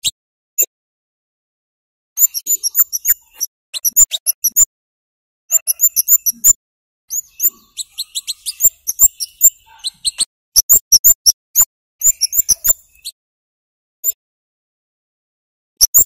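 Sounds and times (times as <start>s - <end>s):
high sharp bird chirps: 2.2s - 4.7s, 5.5s - 13.2s, 15.8s - 16.0s.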